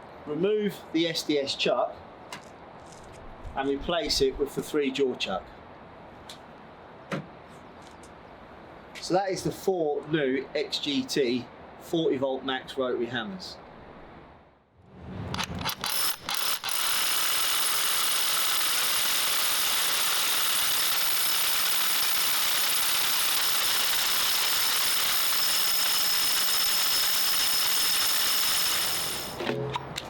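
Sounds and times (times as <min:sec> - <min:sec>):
rotary hammer motor running: 0:15.4 - 0:29.4.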